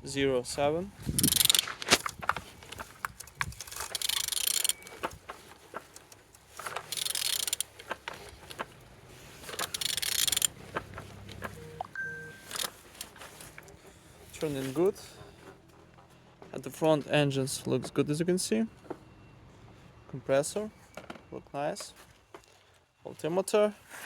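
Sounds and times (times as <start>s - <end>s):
clicks and knocks of engine turning: 1.0s - 17.2s.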